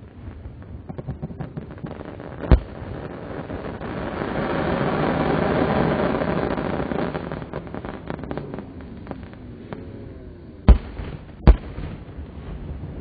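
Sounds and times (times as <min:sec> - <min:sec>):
loud fireworks bangs: 0:00.0 - 0:10.0, 0:10.6 - 0:13.0
fireworks crackles and pops: 0:00.0 - 0:13.0
fireworks rush: 0:00.0 - 0:13.0.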